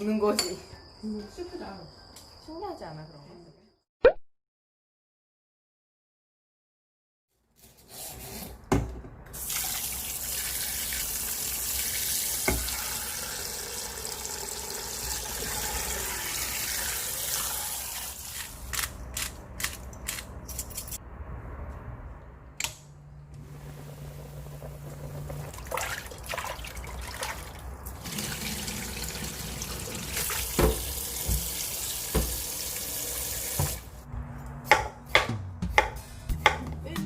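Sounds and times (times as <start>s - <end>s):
tap running into sink: 12.4s - 12.8s, 30.2s - 32.5s, 33.4s - 33.8s.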